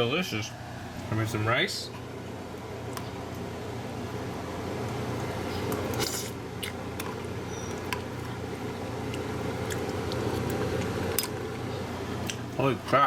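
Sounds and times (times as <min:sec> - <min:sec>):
steady hum: 0:00.0 - 0:13.0
person chewing food: 0:04.9 - 0:12.5.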